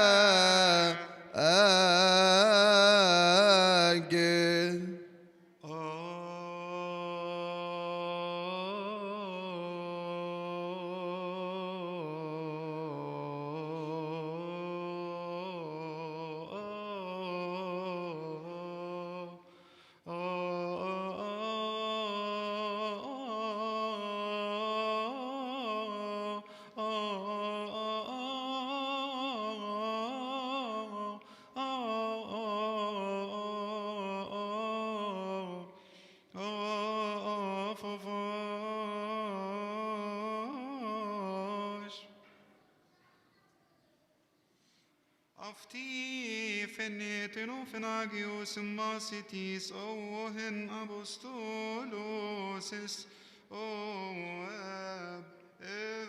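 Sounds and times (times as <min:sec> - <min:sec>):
man chanting wordless melody: 0:00.0 - 0:05.1
man breathing: 0:19.4 - 0:20.1, 0:26.5 - 0:26.8, 0:31.2 - 0:31.6, 0:35.7 - 0:36.4, 0:44.5 - 0:45.3, 0:53.0 - 0:53.5.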